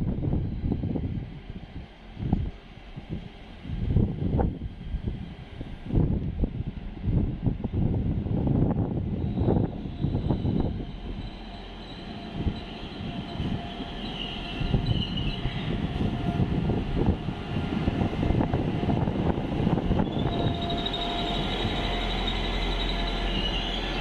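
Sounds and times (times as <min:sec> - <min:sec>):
train rumble with wheel knocks: 0:00.0 - 0:24.0
metallic wheel squealing: 0:09.2 - 0:15.8, 0:20.0 - 0:24.0.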